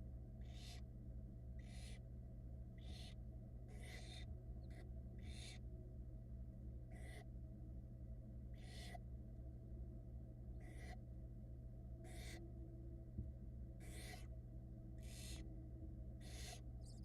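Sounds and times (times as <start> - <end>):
low electrical hum: 0.0 - 17.0
owl nestlings hissing: 0.4 - 0.8, 1.6 - 2.0, 2.8 - 5.6, 8.6 - 9.0, 10.6 - 11.0, 12.0 - 12.4, 13.8 - 14.3, 15.0 - 15.4, 16.2 - 17.0.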